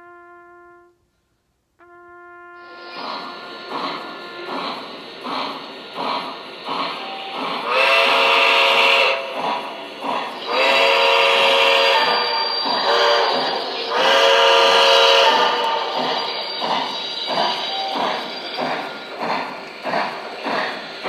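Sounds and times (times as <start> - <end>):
steam whistle: 1.8 - 20.8
steam locomotive chuffing: 2.6 - 21.0.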